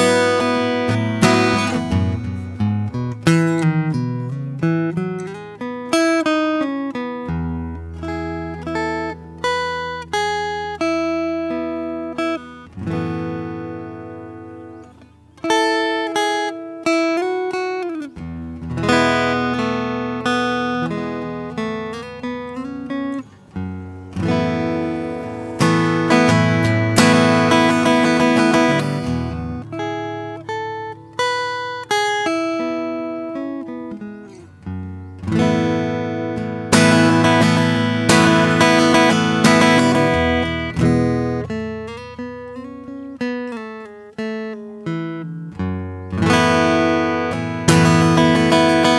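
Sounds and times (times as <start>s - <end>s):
acoustic guitar played slowly: 0.0s - 48.9s.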